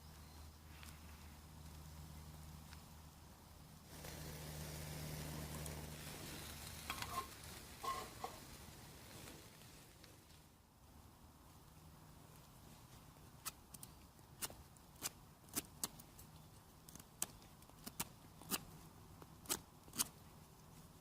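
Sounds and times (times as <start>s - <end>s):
campfire crackling and popping: 3.8s - 10.4s, 13.4s - 20.2s.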